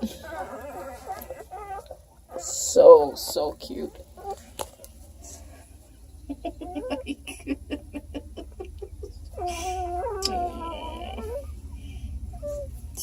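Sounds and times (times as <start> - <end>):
puppies squeaking and grunting: 0.0 - 13.0.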